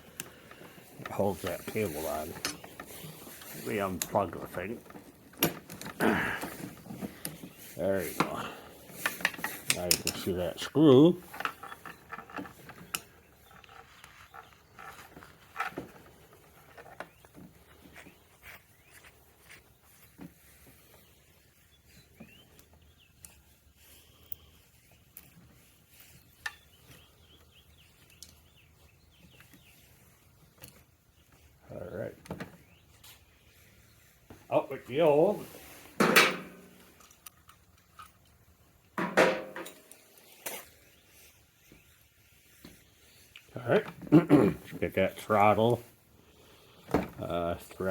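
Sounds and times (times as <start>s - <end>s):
metal tools clinking: 1.0s - 10.4s.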